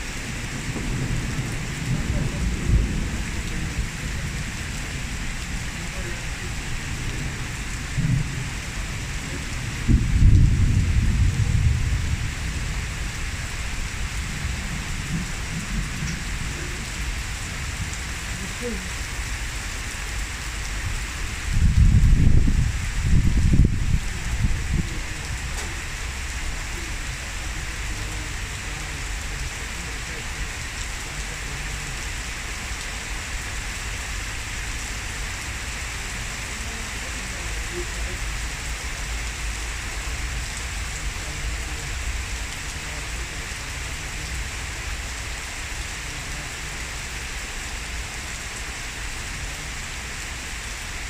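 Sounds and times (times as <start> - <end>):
low rumble of thunder: 0.0 - 19.4, 20.4 - 36.5
heavy rain pouring: 0.0 - 51.0.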